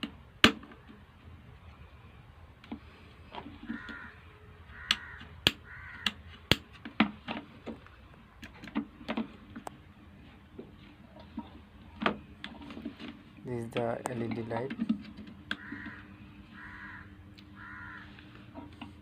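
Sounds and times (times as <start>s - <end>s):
crow cawing: 3.6s - 6.2s, 15.5s - 18.4s.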